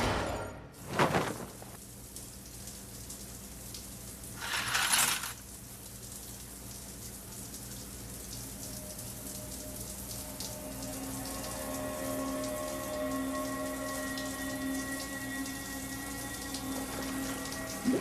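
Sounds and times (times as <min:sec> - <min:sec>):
water drops pattering: 0:06.4 - 0:18.0.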